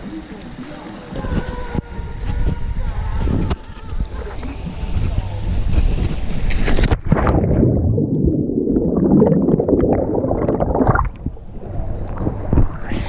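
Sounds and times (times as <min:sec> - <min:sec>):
muffled underwater gurgling: 0:07.1 - 0:13.0.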